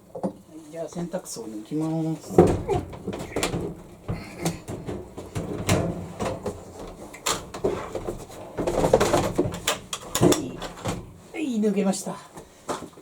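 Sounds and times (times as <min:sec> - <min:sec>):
plastic knocks scrapes and rattles: 0:02.2 - 0:11.3.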